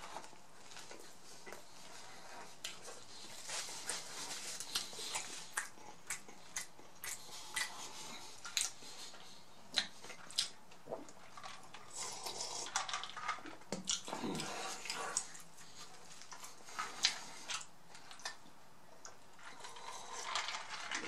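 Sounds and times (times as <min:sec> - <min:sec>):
chewing mouth clicks and smacks: 0:04.7 - 0:11.1, 0:13.4 - 0:15.4.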